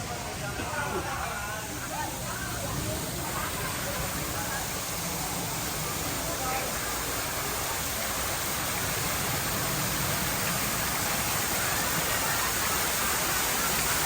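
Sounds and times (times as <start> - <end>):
faint distant voices: 0.0 - 14.0
steady rushing noise: 0.0 - 14.0.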